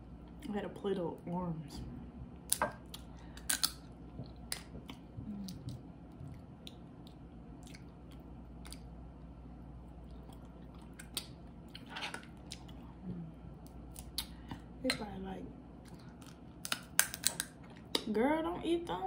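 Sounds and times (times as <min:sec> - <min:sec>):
person chewing: 0:02.8 - 0:13.0, 0:13.6 - 0:14.7.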